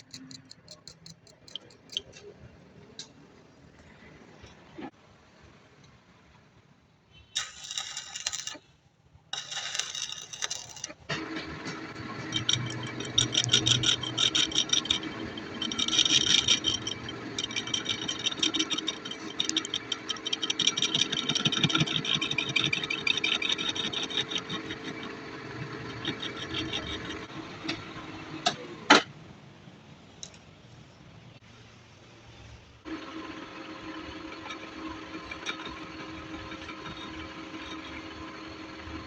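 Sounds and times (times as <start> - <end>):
fast crackle of metal cutting: 7.4 - 8.6, 9.4 - 11.1, 11.7 - 27.3
lathe motor hum: 9.5 - 28.4, 32.9 - 39.0.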